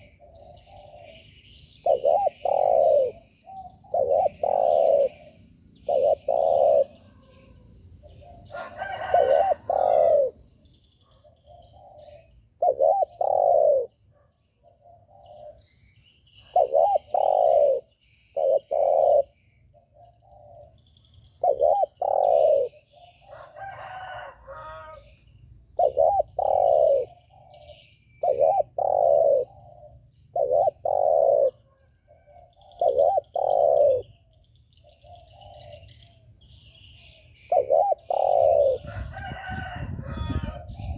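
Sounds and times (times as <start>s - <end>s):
dove cooing: 0.0s - 15.7s, 16.4s - 20.8s, 21.4s - 25.1s, 25.8s - 40.9s
small birds chirping: 0.0s - 40.9s
rooster crowing: 8.4s - 10.4s, 23.2s - 25.1s, 38.6s - 40.9s.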